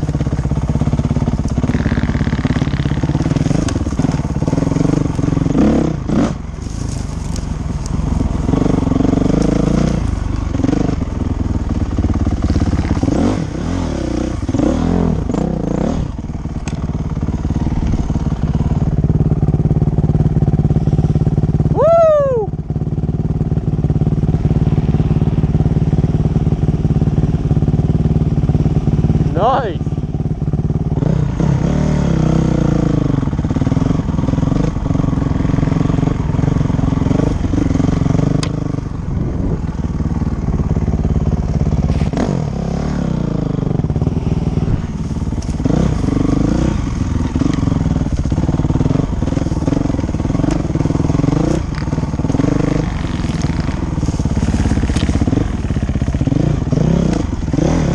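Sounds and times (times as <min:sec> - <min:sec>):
dirt bike engine running: 0:00.0 - 0:57.9.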